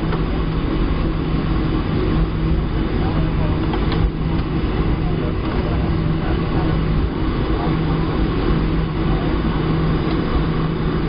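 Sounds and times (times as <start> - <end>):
jet engine and airflow noise: 0.0 - 11.0
low hum: 0.0 - 11.0.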